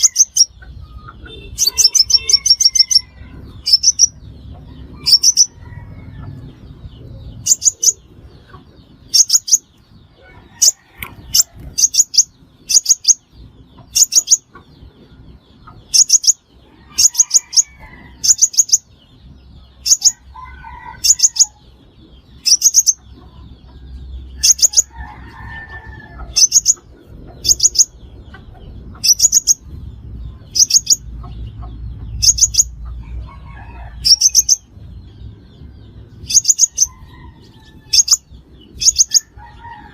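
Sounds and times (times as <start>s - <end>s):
sunbird calls: 0.0s - 4.2s.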